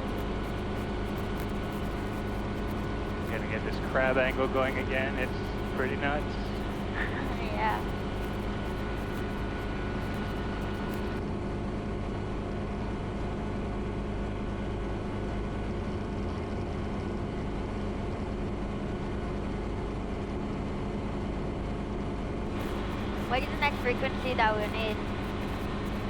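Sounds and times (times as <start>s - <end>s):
faint thin whine: 0.0s - 11.2s, 22.5s - 26.0s
helicopter cabin drone: 0.0s - 26.0s.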